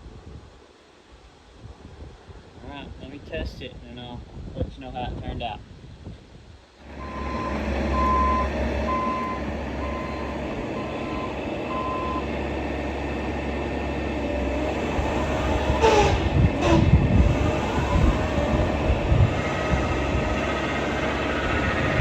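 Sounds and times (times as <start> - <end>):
diesel engine starting and running: 6.8 - 22.0
electronic warning beeps: 7.0 - 12.2.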